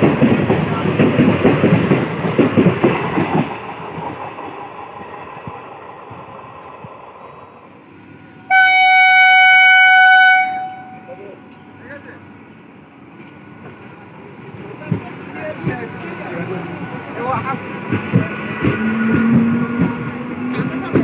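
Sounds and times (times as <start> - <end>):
train wheels clattering on rails: 0.0 - 7.2, 13.2 - 21.0
train horn steady note: 8.5 - 11.2.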